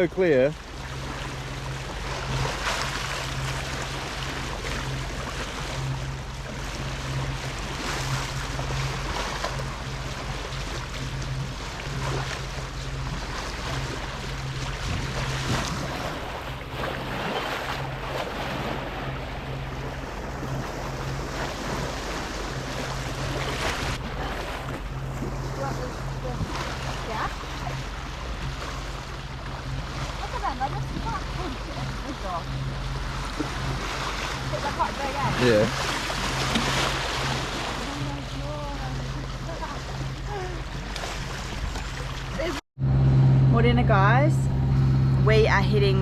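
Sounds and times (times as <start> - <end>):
boat engine humming: 0.0 - 46.0
water washing along hull: 0.0 - 46.0
wind noise on microphone: 14.7 - 16.3.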